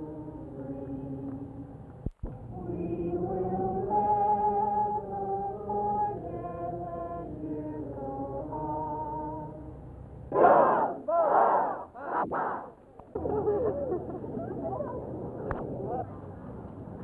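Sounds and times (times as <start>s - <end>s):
choir singing held chords: 0.0s - 1.9s, 2.5s - 12.2s.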